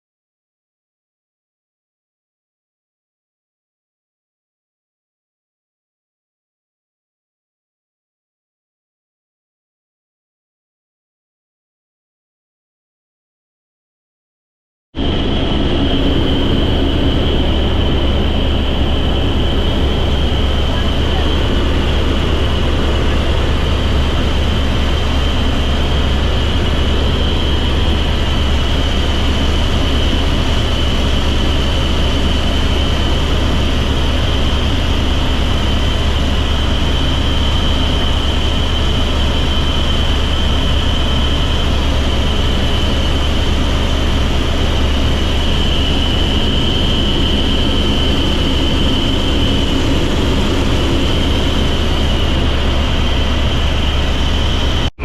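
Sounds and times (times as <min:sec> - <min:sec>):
helicopter cabin drone: 0:15.0 - 0:55.0
constant high tone: 0:15.9 - 0:32.8.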